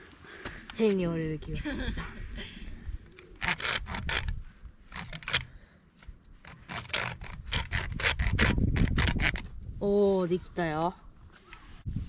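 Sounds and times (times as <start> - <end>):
knife scraping wood: 3.1 - 9.5.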